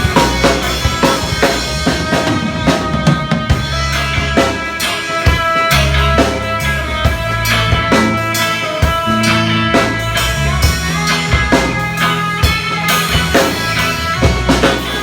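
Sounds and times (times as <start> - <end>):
drum kit hits: 0.0 - 15.0
guitar chords: 0.0 - 15.0
low bass notes: 0.0 - 15.0.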